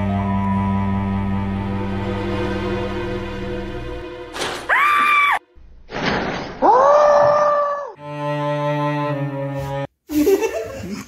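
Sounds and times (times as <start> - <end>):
background music: 0.0 - 5.9, 8.0 - 9.9.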